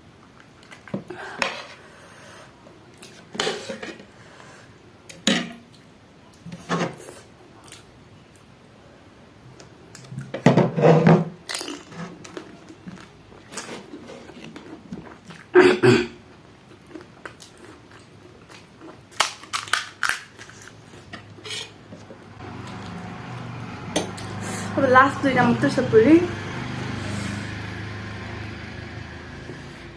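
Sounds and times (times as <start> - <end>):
crisp food crunching while chewing: 11.4 - 15.6, 16.6 - 21.1.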